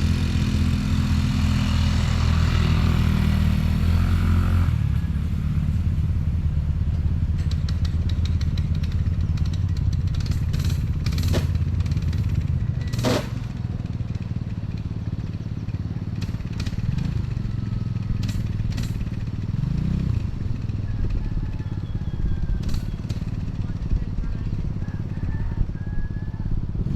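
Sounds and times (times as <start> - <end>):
small motorcycle engine running: 0.0 - 26.9.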